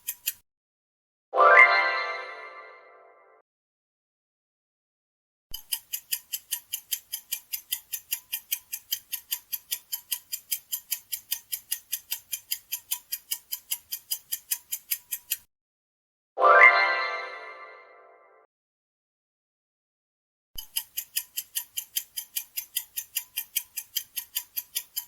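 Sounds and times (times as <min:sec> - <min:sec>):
clock ticking: 0:00.0 - 0:00.4, 0:05.6 - 0:15.5, 0:20.6 - 0:25.0.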